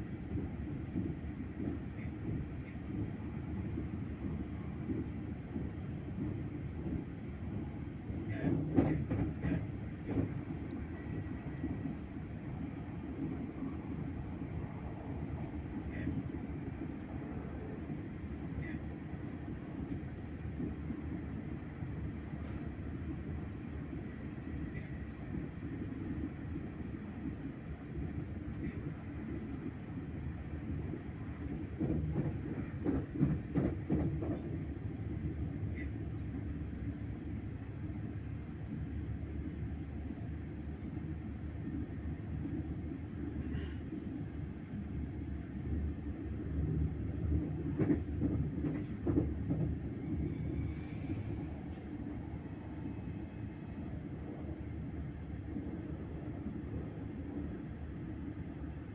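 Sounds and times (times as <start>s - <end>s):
train rumbling: 0.0s - 58.9s
train knocks: 8.3s - 10.7s, 31.5s - 34.8s.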